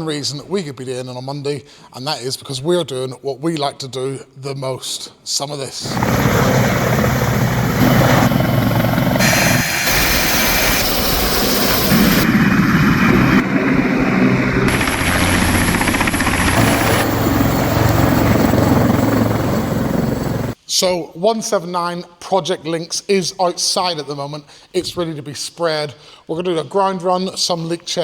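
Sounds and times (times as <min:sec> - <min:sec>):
helicopter turbine and rotor: 0:05.8 - 0:20.6.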